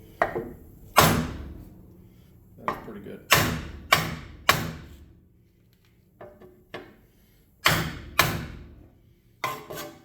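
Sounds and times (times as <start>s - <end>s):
hammer striking metal wheel rim: 3.3s - 4.9s, 7.6s - 8.7s.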